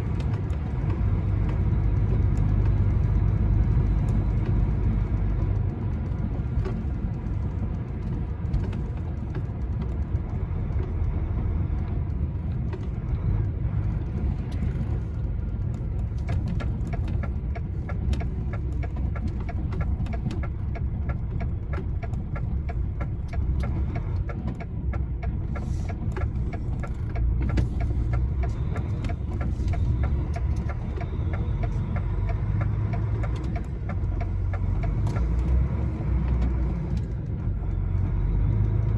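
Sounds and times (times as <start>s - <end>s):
lorry engine running: 0.0s - 38.9s
road rumble: 0.0s - 38.9s
steady ticking: 13.9s - 38.9s.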